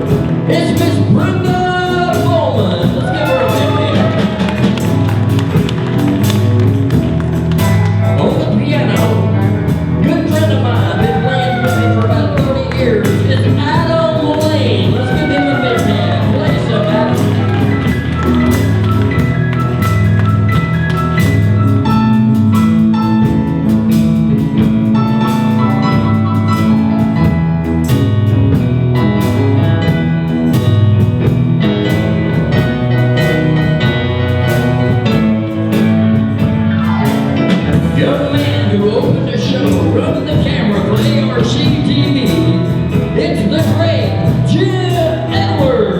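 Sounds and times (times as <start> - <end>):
lead instrument holding notes: 0.0 - 30.8
bass line: 0.0 - 45.9
drum kit beat: 0.0 - 45.9.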